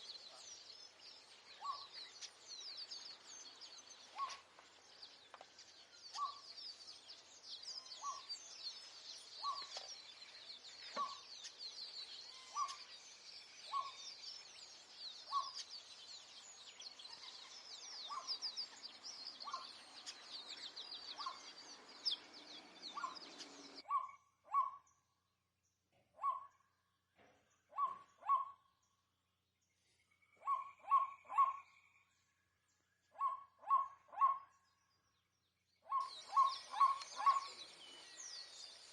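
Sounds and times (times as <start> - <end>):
bird yelping calls: 1.4 - 3.2, 4.0 - 4.5, 6.0 - 6.5, 7.6 - 8.4, 9.3 - 10.0, 10.7 - 13.0, 13.6 - 14.3, 15.2 - 15.9, 16.9 - 25.0, 26.2 - 26.6, 27.7 - 28.8, 30.4 - 31.9, 33.2 - 34.8, 35.8 - 38.9.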